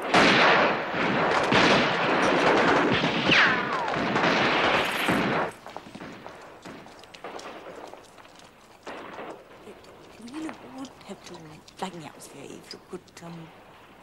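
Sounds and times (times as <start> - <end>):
rapid gunfire: 0.0 - 9.5.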